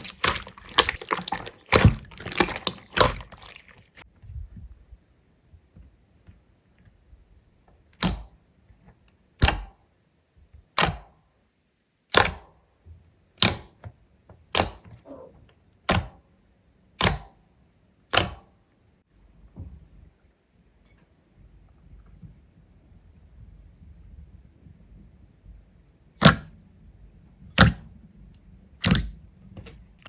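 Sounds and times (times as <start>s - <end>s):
slime crackling pops: 0.0s - 4.0s.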